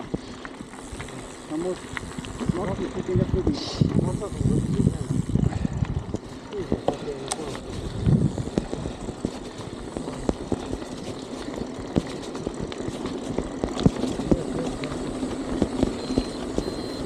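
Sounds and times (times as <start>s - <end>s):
bicycle knocks and rattles: 0.0s - 16.8s
wind buffeting microphone: 1.9s - 10.9s.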